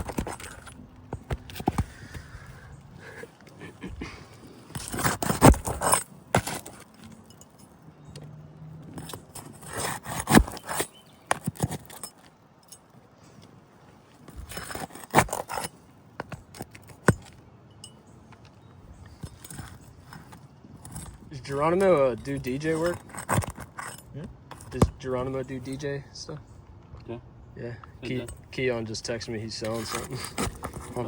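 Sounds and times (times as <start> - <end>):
metal tools scraping on shingles: 0.0 - 26.3, 28.0 - 31.0.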